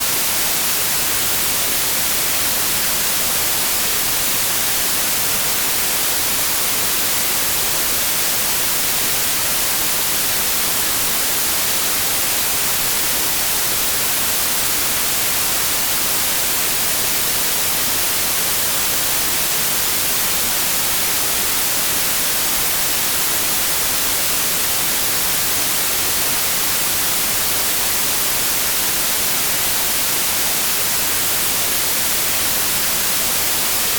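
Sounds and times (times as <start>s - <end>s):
white noise hiss: 0.0s - 33.9s.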